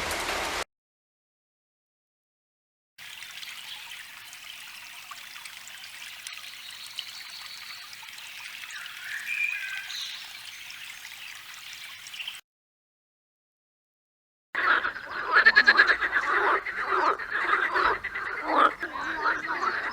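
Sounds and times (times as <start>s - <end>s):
brook water trickling: 3.0s - 12.4s, 14.8s - 19.9s.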